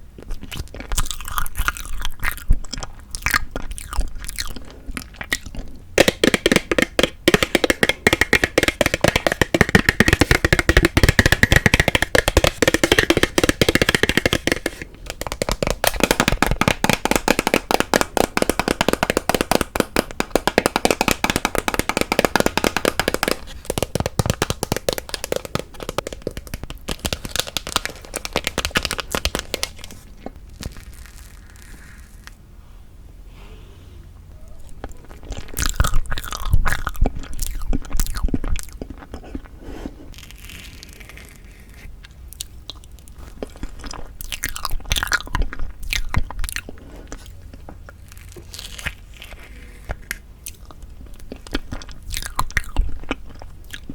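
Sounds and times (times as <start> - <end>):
plastic packaging crinkling: 6.0 - 32.4.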